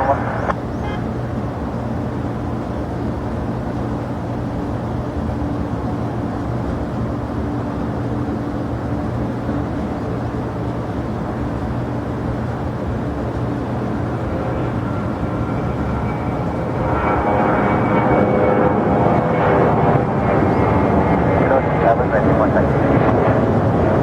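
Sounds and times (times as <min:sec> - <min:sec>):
faint high whine: 0:00.0 - 0:01.0, 0:13.3 - 0:24.0
jet engines humming: 0:00.0 - 0:24.0.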